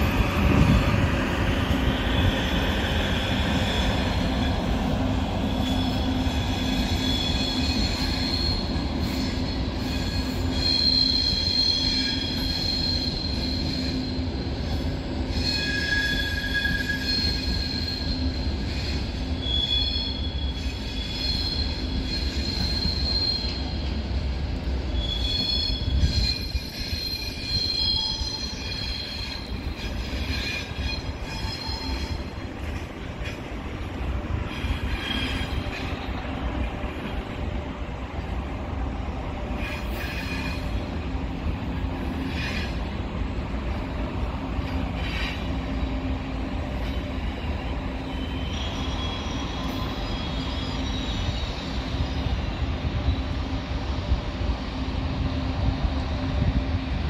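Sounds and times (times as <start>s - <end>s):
train rolling with low rumble: 0.0s - 57.0s
wheels squealing: 5.4s - 14.4s, 15.3s - 23.9s, 25.0s - 37.1s.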